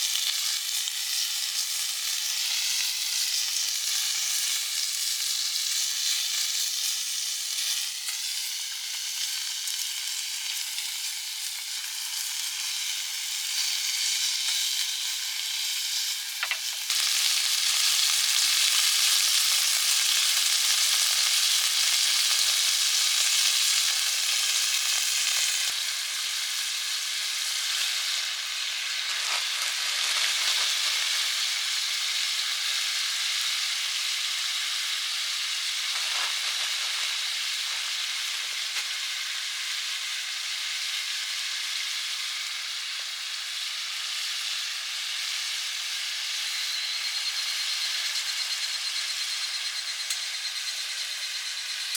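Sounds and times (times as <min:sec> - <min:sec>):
meat sizzling in a pan: 0:00.0 - 0:51.9.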